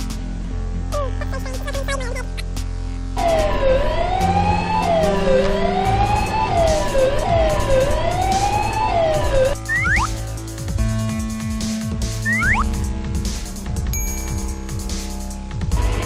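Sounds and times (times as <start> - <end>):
low background music: 0.0 - 16.0
siren wailing: 3.2 - 10.1, 12.3 - 12.6.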